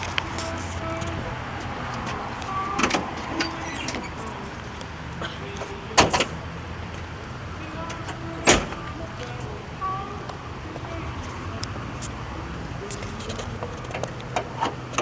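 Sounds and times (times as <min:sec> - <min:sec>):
car clicks and metallic clunks: 0:00.0 - 0:09.4, 0:12.9 - 0:15.0.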